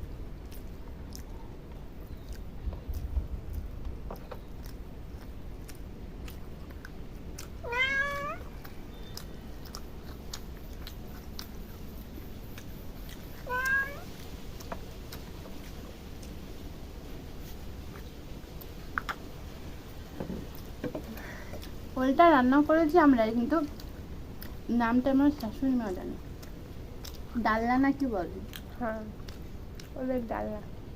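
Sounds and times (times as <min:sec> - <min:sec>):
faint chewing clicks: 0:00.0 - 0:30.9
cat meowing: 0:07.6 - 0:08.5, 0:13.4 - 0:14.1.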